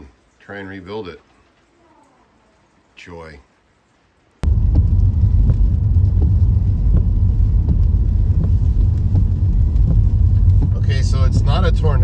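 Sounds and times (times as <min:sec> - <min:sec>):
light ticks and rattles: 0:03.9 - 0:12.0
motor vehicle low rumble: 0:04.4 - 0:12.0.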